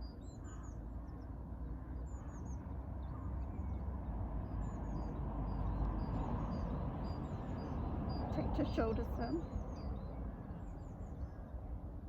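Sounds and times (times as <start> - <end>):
small birds chirping: 4.6 - 11.4.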